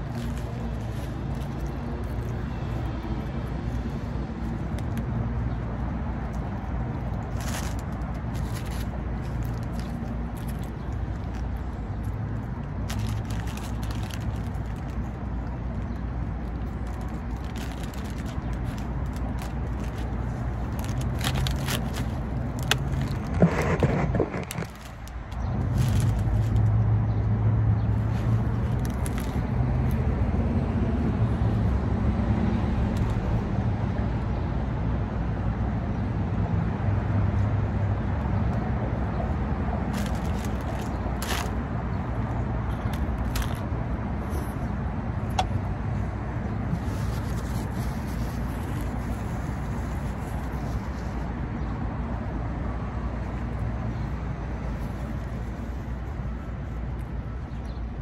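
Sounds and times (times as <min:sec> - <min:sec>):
paper wrapper crackling: 0:00.0 - 0:26.7, 0:27.9 - 0:30.0, 0:39.8 - 0:43.8, 0:46.6 - 0:51.3
crunchy taco chewing: 0:00.0 - 0:26.8, 0:27.9 - 0:30.5, 0:38.4 - 0:44.0, 0:46.6 - 0:51.3.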